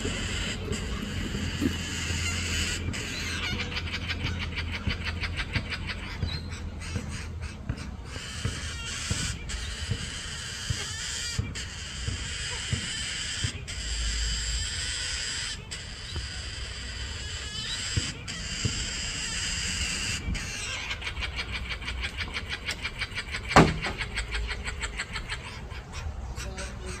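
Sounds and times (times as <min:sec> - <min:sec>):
shrill bird calls: 0:00.0 - 0:27.0
sharp knock: 0:23.6 - 0:24.0.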